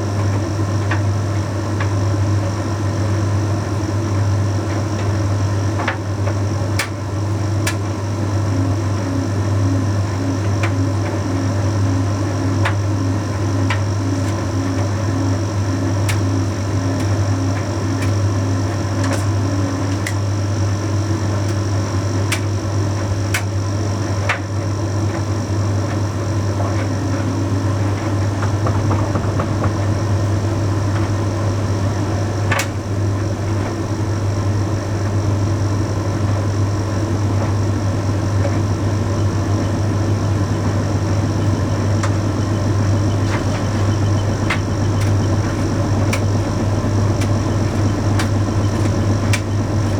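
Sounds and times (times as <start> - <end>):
tumble dryer humming: 0.0 - 49.9
sharp clicks of tumbling load: 26.8 - 34.1, 38.4 - 49.9.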